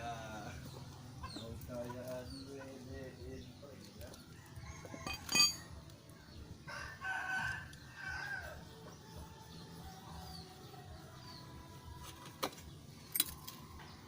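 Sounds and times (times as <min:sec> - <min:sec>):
sharp metallic clank: 0:05.0 - 0:05.7
rooster crowing: 0:06.7 - 0:08.6.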